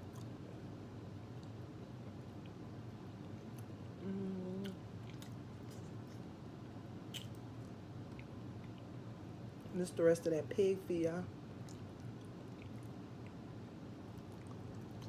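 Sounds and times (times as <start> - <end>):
chewing and biting: 0.0 - 0.4, 4.6 - 6.3, 7.1 - 8.9, 11.6 - 15.0
person humming: 4.0 - 4.8.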